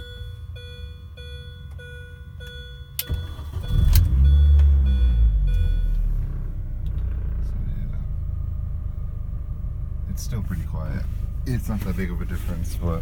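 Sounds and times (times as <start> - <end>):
car warning chime dinging: 0.0 - 6.7
car engine starting and idling: 0.0 - 13.0.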